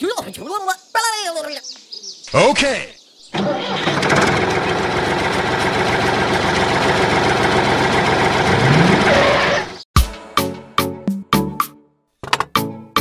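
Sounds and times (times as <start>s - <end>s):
engine running: 3.3s - 9.8s
music with sharp beats: 10.0s - 12.7s.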